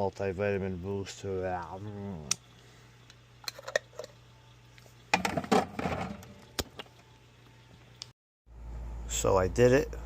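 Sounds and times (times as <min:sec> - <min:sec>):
dense clattering of containers: 0:05.1 - 0:06.3.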